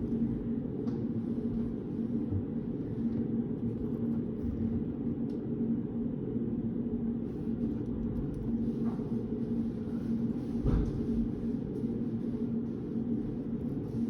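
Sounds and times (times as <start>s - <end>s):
even hum: 0.0s - 14.0s
low rumble of room noise: 0.0s - 14.0s.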